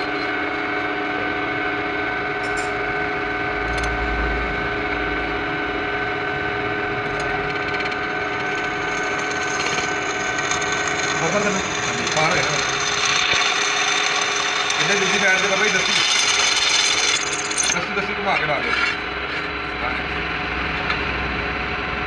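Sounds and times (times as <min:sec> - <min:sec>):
machine motor humming: 0:00.0 - 0:22.0
low rumble: 0:03.4 - 0:07.0.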